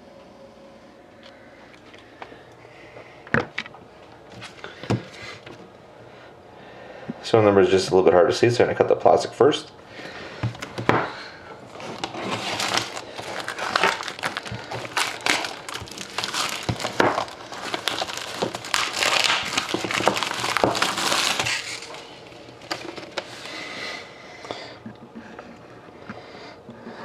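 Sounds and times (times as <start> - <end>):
plastic wrap crinkling: 11.6 - 23.9.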